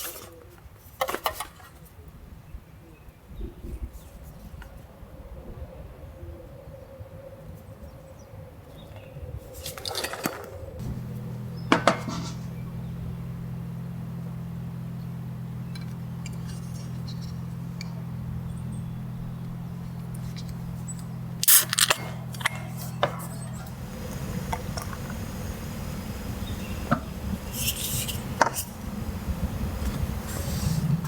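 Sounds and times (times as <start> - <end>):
steady low hum: 10.7 - 31.0.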